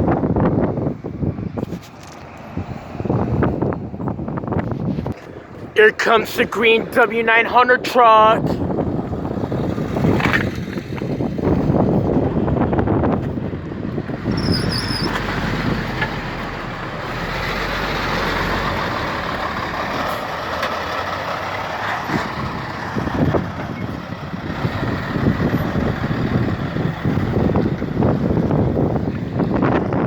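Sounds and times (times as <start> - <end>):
wind on microphone: 0.0 - 5.8, 8.4 - 16.3, 22.1 - 30.0
truck passing on road: 0.0 - 30.0.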